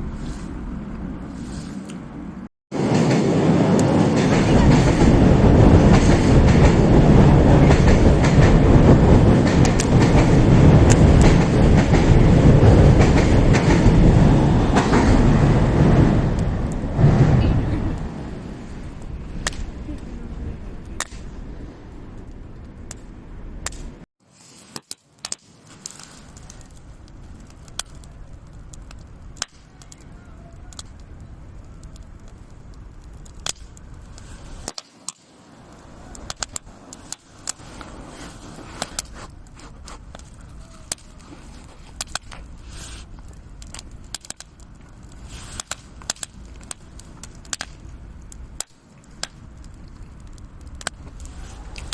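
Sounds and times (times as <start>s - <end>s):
low rumble: 0.0s - 24.1s
wood fire crackling and popping: 0.0s - 51.9s.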